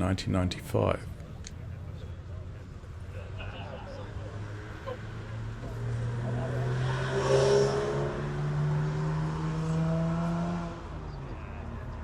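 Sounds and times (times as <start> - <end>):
car engine revving up: 4.1 - 12.0.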